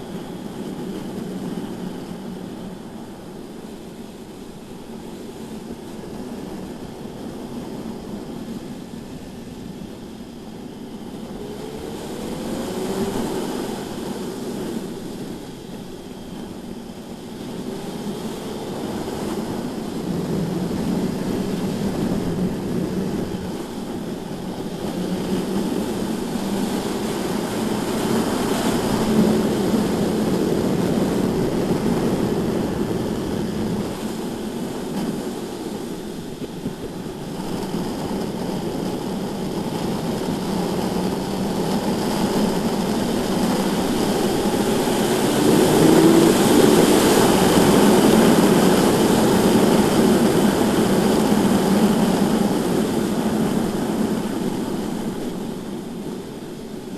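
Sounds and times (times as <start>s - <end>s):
wind noise: 0.0s - 56.9s
motorcycle engine accelerating: 42.2s - 49.6s.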